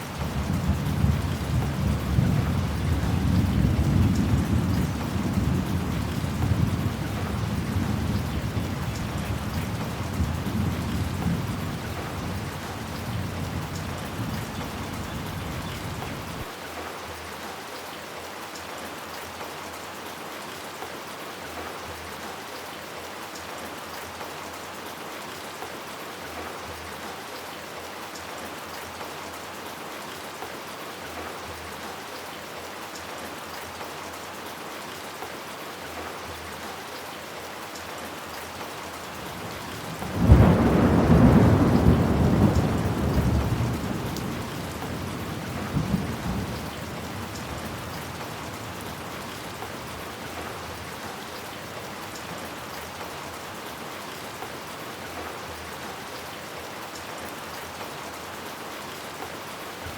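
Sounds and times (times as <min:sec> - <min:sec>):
steady rain: 0:00.0 - 0:59.9
thunder rumbling: 0:39.8 - 0:49.1.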